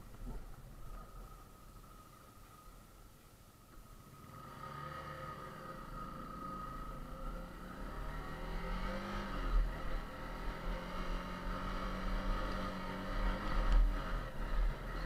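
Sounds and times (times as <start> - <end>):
motorcycle engine revving: 4.1 - 15.0.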